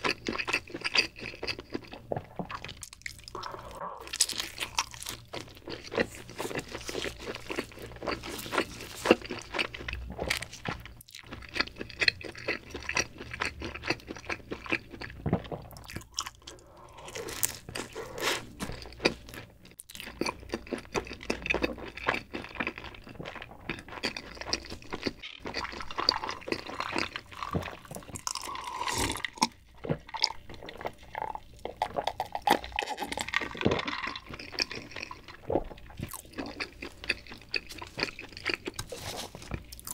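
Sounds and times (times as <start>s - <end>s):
crunchy chewing: 0.0s - 39.9s
gulping a drink: 1.9s - 4.9s.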